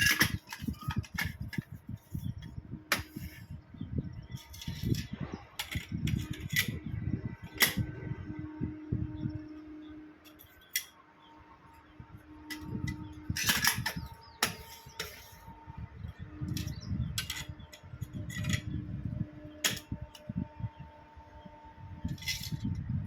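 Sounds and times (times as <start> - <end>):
metal parts clicking and knocking: 0.0 - 3.4, 4.4 - 6.8, 10.2 - 11.0, 12.4 - 15.4, 16.5 - 18.8, 19.6 - 20.3, 22.1 - 22.6
faint steady hum: 0.0 - 23.0.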